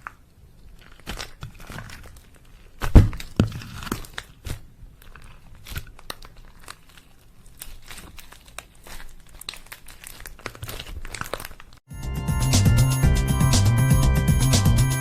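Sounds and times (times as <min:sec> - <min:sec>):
slime squished by hand: 0:00.0 - 0:11.8.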